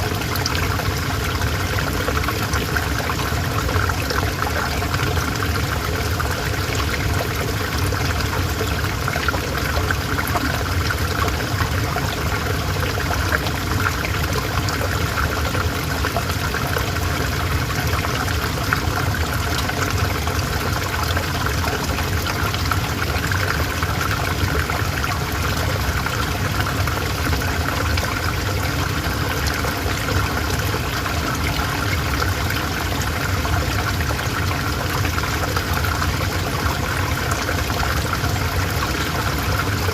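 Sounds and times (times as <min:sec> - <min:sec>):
river water babbling over stones: 0:00.0 - 0:39.9.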